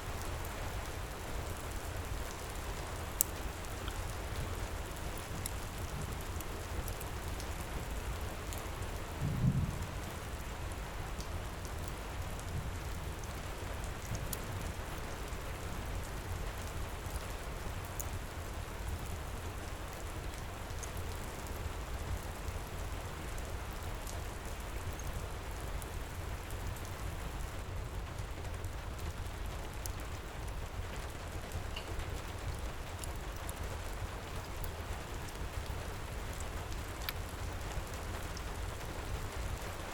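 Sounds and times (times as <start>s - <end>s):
heavy rain pouring: 0.1s - 39.9s
fireplace crackling: 28.1s - 39.7s.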